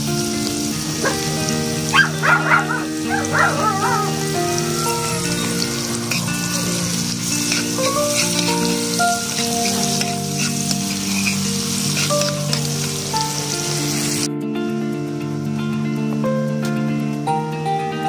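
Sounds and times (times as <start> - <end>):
garlic and onion sizzling: 0.0 - 14.3
background music: 0.0 - 18.0
spoon stirring in a wok: 5.6 - 12.7.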